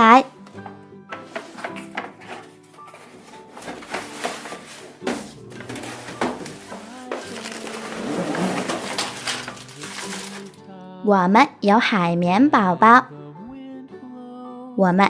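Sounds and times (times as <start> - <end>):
faint background music: 0.0 - 15.0
plastic toys knocking and clicking: 1.2 - 7.4
rustling: 1.2 - 10.6.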